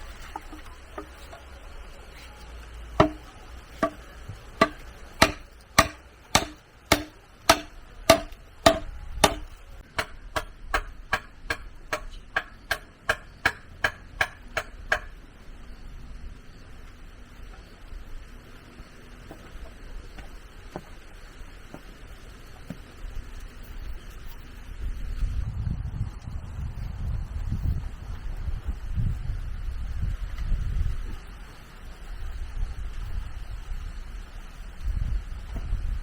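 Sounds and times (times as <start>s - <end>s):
tool knocking on bamboo: 3.0s - 15.1s.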